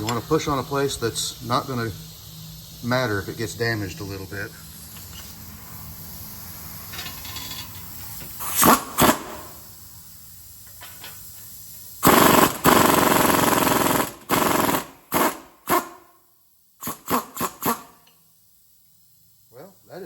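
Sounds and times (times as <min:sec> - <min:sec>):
impact wrench hammering: 0:06.9 - 0:09.5, 0:12.0 - 0:16.1, 0:16.8 - 0:18.1.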